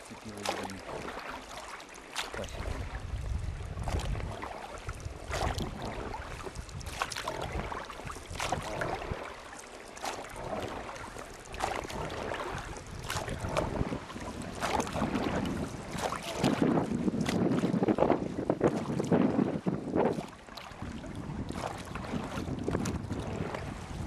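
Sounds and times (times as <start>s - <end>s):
wind buffeting microphone: 2.3s - 9.4s, 10.2s - 24.0s.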